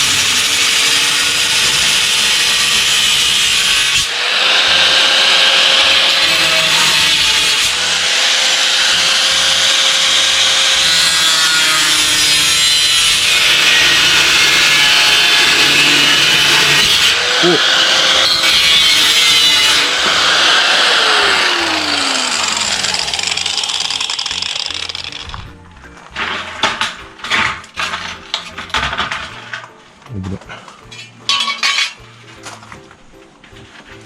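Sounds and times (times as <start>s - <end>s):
power saw cutting wood: 0.0s - 25.4s.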